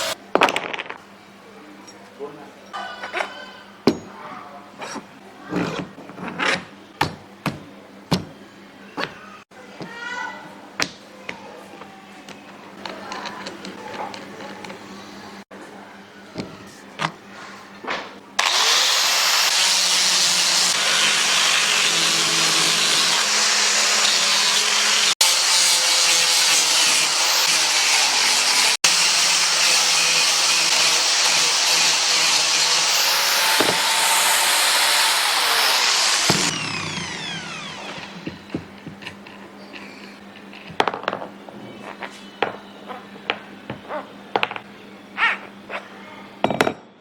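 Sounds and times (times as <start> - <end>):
electric power tool running: 18.4 - 38.6.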